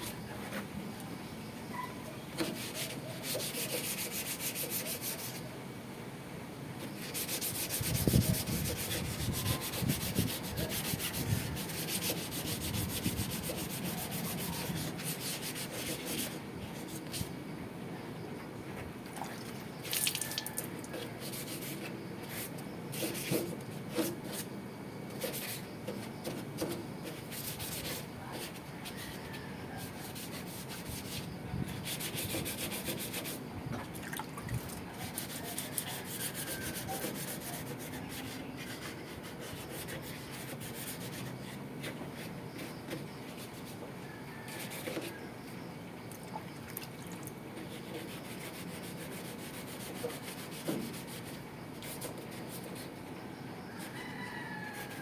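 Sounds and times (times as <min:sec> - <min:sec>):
hand rubbing on metal: 0:02.4 - 0:05.4, 0:06.9 - 0:17.3, 0:19.7 - 0:24.5, 0:25.2 - 0:33.4, 0:34.5 - 0:43.7, 0:47.6 - 0:53.0.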